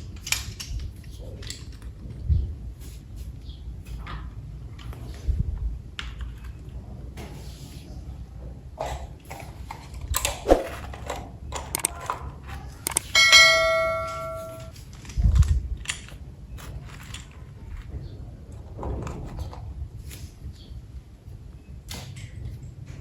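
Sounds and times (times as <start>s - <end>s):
toy parts clicking and knocking: 10.2s - 13.5s, 14.6s - 18.0s
bell-like metallic ding: 13.2s - 14.7s.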